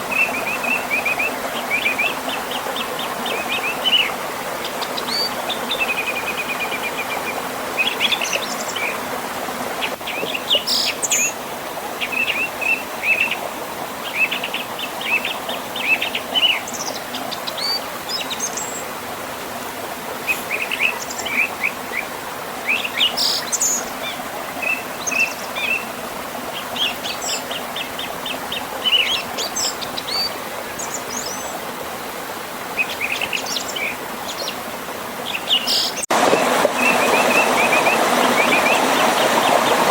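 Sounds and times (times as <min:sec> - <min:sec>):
flowing river water: 0:00.0 - 0:39.9
small birds singing and chirping: 0:20.3 - 0:25.9, 0:26.6 - 0:31.6, 0:35.2 - 0:36.1.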